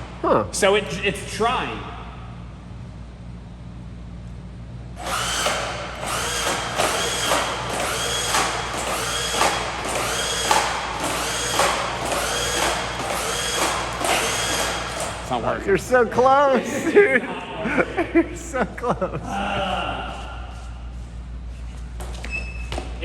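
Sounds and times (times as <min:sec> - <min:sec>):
electric motor whining in bursts: 0:05.0 - 0:15.5.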